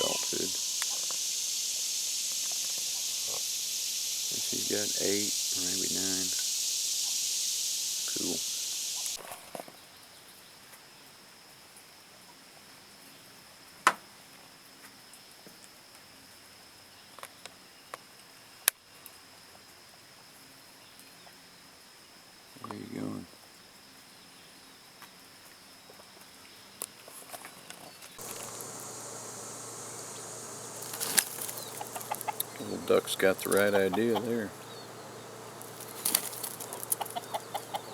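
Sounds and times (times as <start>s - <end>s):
faint high insect-like drone: 0.0s - 9.2s, 28.2s - 37.9s
steady hiss: 0.0s - 9.4s, 28.1s - 37.9s
small ticks: 0.0s - 9.7s, 26.8s - 37.9s.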